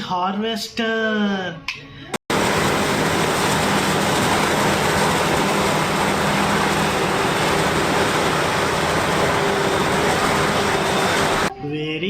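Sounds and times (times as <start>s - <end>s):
heavy machine engine running: 2.3s - 11.5s.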